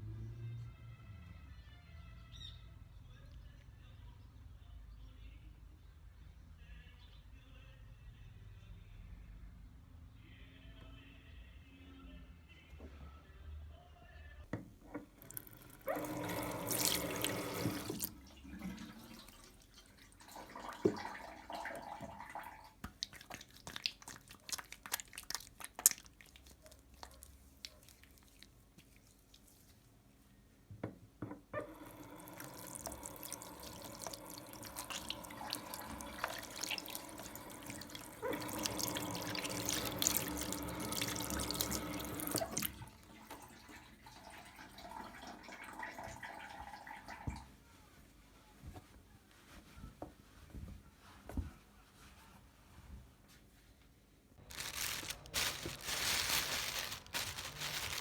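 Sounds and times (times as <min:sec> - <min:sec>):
tap water running into sink: 0:15.0 - 0:24.0, 0:31.6 - 0:47.5.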